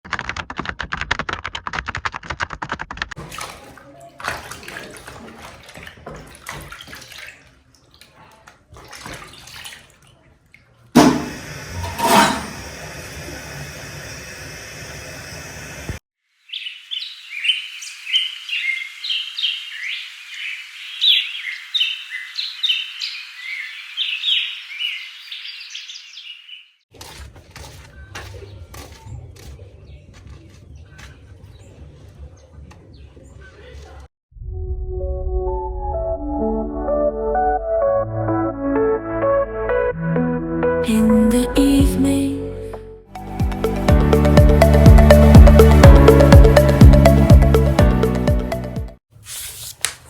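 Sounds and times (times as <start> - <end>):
running water: 3.2 - 16.0
birds chirping: 16.5 - 26.8
faint handling sounds: 49.1 - 50.0.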